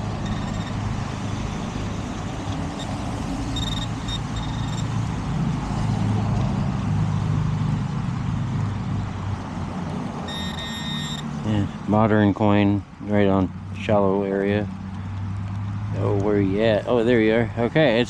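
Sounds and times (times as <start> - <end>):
metal detector beeps: 0.0 - 1.7, 2.4 - 5.0, 10.3 - 11.3
busy road traffic rumble: 0.0 - 18.0.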